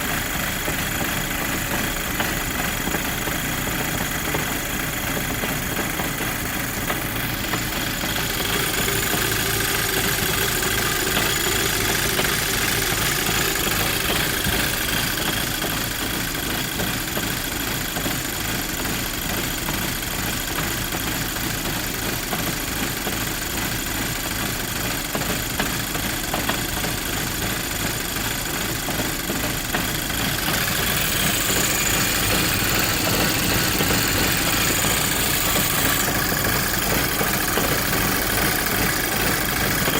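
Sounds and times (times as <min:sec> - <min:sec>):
car engine idling roughly: 0:00.0 - 0:39.9.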